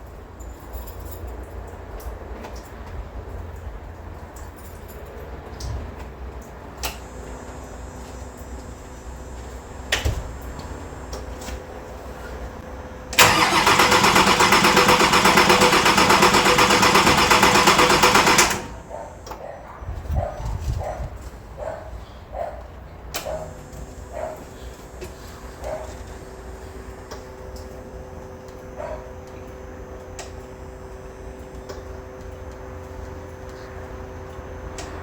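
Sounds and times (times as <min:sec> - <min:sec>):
diesel engine cranking on starter: 0:13.1 - 0:18.9.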